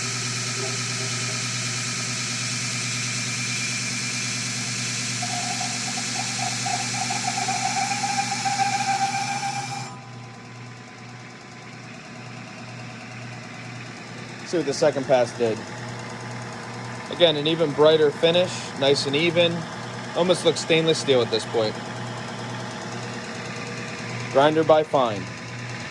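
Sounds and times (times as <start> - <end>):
belt grinder grinding hiss: 0.0 - 10.6, 13.4 - 25.9
motor hum: 0.0 - 25.9
tone: 5.2 - 10.2.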